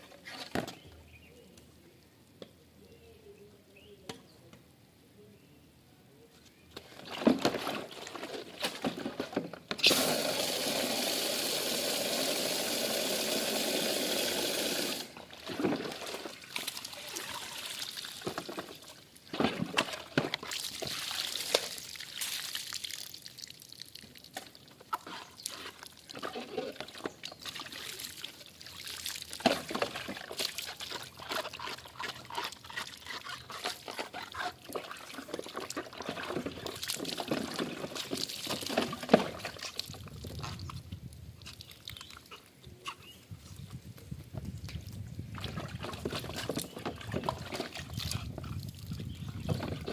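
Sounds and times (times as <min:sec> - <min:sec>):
water pouring: 0:09.8 - 0:33.1
water splashing and dripping: 0:14.4 - 0:32.8, 0:34.6 - 0:42.4.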